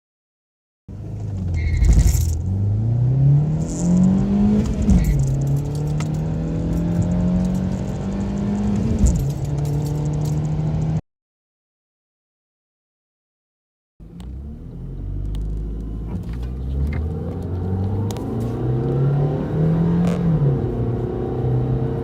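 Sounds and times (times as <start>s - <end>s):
car engine accelerating: 0.9s - 11.0s, 14.0s - 22.0s
rattling: 1.6s - 2.5s, 3.6s - 10.5s.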